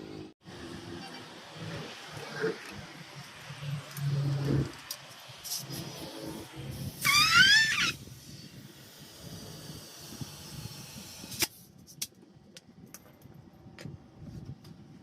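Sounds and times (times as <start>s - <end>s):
animal call rising and wavering: 7.0s - 8.0s.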